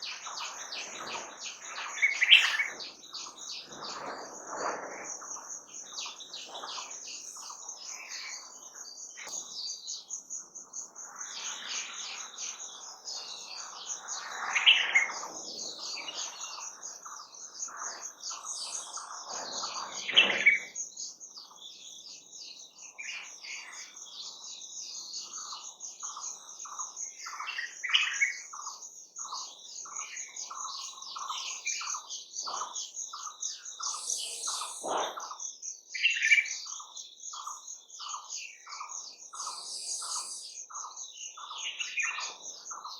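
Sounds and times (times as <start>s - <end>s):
birds singing and calling: 0.0s - 42.9s
repeated short bird notes: 32.5s - 36.2s.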